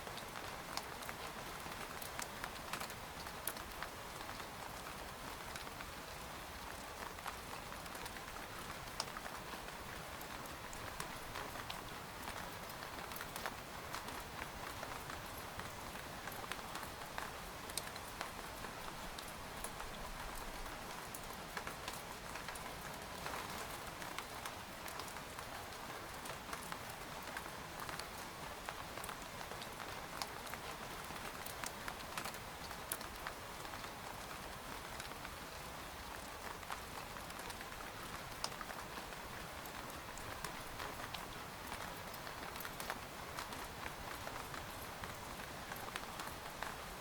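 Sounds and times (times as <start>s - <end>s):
rain pattering on a tent: 0.0s - 47.0s.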